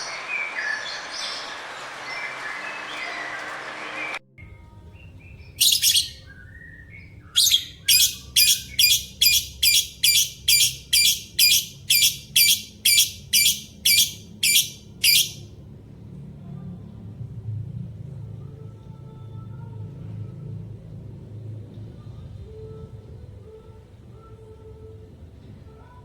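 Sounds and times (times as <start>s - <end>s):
bird chirping harshly: 5.6s - 6.2s, 7.4s - 15.4s.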